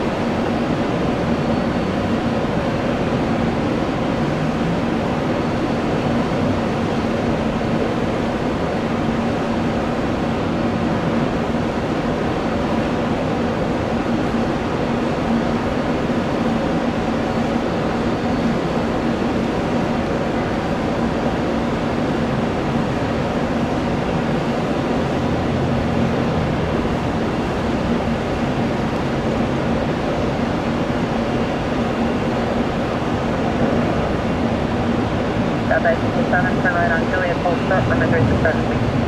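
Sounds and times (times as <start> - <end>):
jet engine rumble: 0.0 - 39.0.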